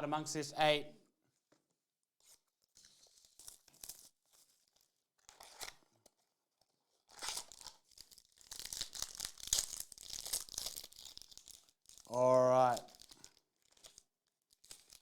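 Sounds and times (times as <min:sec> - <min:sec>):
packaging tearing: 0:07.1 - 0:15.0
wrapper crinkling: 0:07.1 - 0:15.0.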